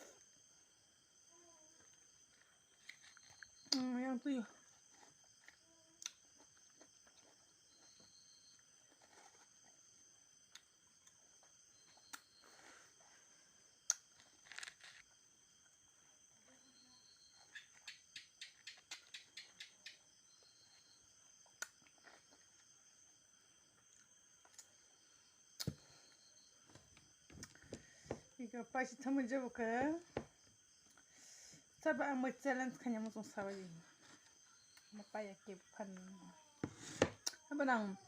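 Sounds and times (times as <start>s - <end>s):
mouth clicks and smacks eating: 17.6s - 20.0s.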